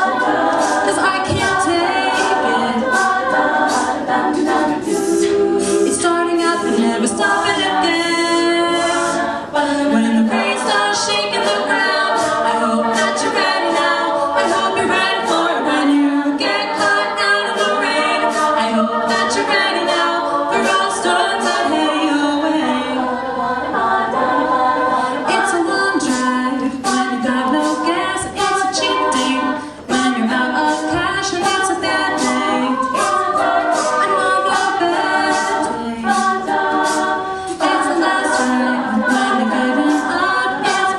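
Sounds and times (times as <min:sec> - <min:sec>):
women singing in harmony: 0:00.0 - 0:40.9.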